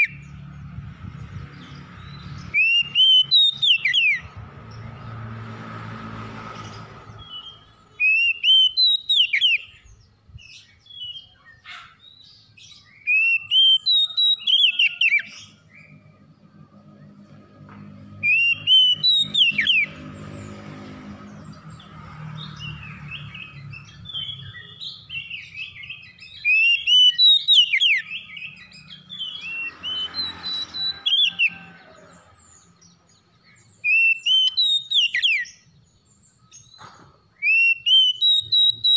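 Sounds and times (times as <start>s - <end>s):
bird singing whistled notes: 1.6s - 4.3s, 7.1s - 16.2s, 18.1s - 20.1s, 22.4s - 31.7s, 32.4s - 38.9s.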